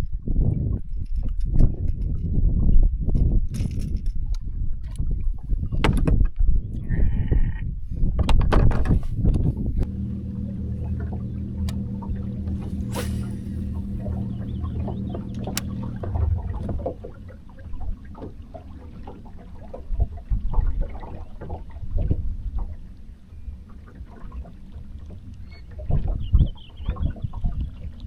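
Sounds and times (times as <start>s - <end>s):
low thumps and knocks: 5.7s - 6.4s, 8.1s - 18.5s
boat motor hum: 9.2s - 28.0s.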